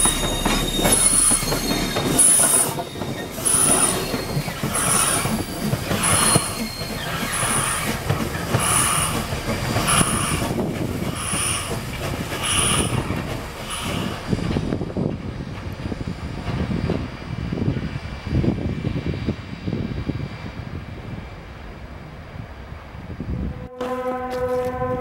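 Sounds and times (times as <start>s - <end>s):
short high squeak: 0.0s - 8.0s
train rumbling: 0.0s - 25.0s.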